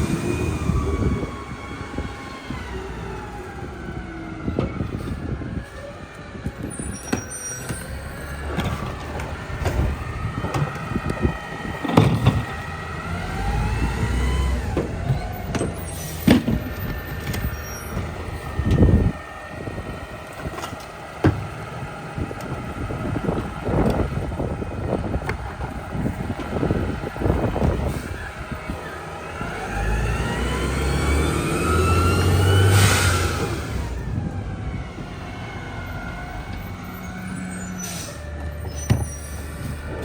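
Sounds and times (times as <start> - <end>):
diesel engine running: 0.0 - 7.0, 7.6 - 40.0
hydraulics whining: 0.0 - 40.0
metal clanks and thumps: 8.5 - 12.7, 14.7 - 18.9, 38.4 - 40.0.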